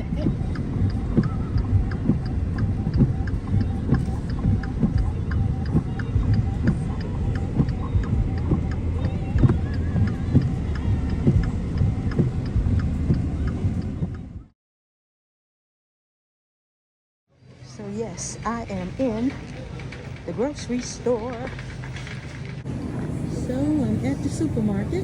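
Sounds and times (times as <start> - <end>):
heavy rain on a car: 0.0 - 14.1.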